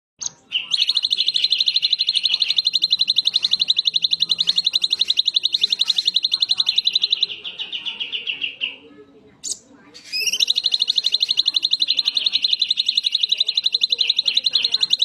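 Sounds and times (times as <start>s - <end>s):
bird high trill: 0.2s - 8.8s, 9.4s - 15.0s.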